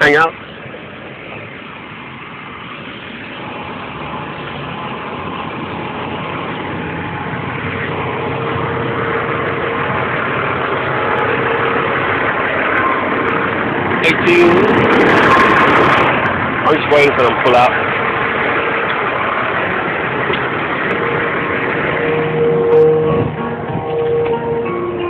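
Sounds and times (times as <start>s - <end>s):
diesel truck engine idling: 0.0s - 25.0s.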